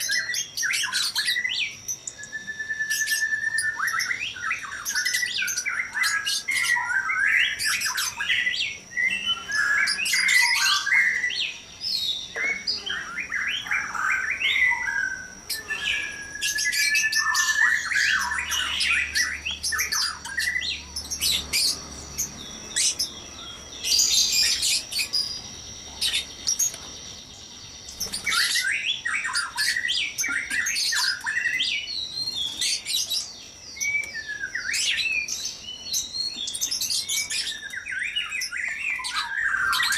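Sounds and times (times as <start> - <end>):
birds chirping and squawking: 0.0 - 39.9
steady high-pitched whine: 0.0 - 39.9.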